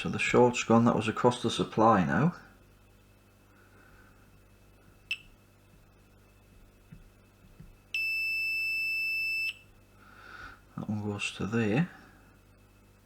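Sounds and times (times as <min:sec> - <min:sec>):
multimeter beeping: 0:07.9 - 0:09.6.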